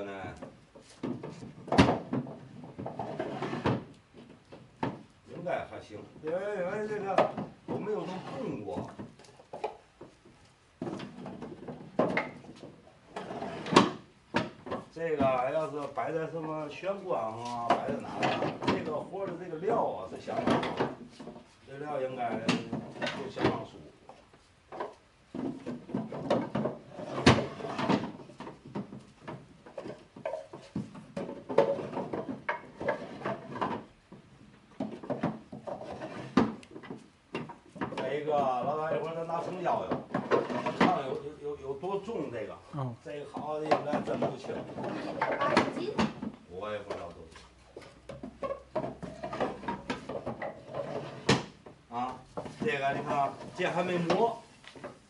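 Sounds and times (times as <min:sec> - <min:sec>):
wooden drawers scraping: 0:00.4 - 0:04.0, 0:06.3 - 0:09.2, 0:10.8 - 0:15.6, 0:17.4 - 0:21.5, 0:22.2 - 0:23.8, 0:24.7 - 0:34.0, 0:34.8 - 0:41.3, 0:43.6 - 0:47.1, 0:48.1 - 0:55.0.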